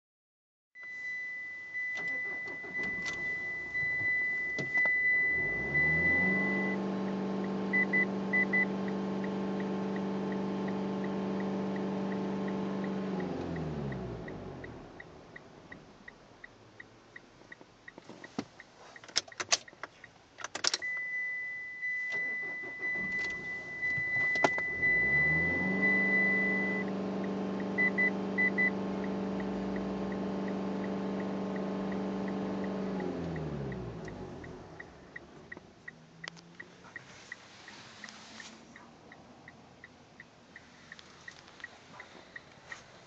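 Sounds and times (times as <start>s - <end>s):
short beeps: 0.8s - 6.8s, 20.8s - 26.9s
dashboard warning chime: 0.8s - 15.5s, 20.8s - 41.0s
light regular ticking: 6.8s - 20.6s, 26.8s - 43.0s
diesel engine running: 22.2s - 39.8s.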